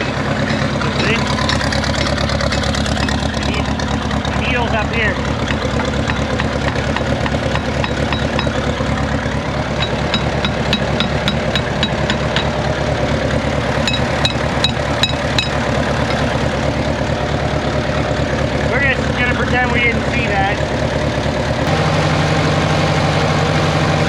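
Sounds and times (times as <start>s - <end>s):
tractor engine idling with misfire: 0.0s - 24.0s
sharp ticks: 9.8s - 12.5s, 13.8s - 15.7s.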